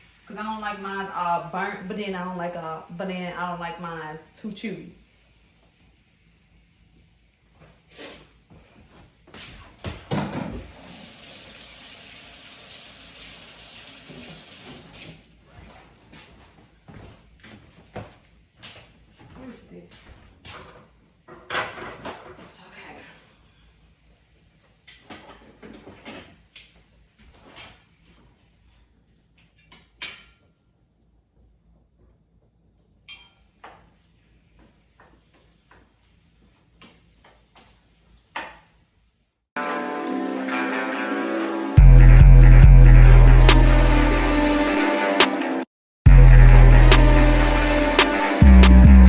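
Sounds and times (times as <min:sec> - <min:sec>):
tap water running into sink: 0:10.6 - 0:15.2.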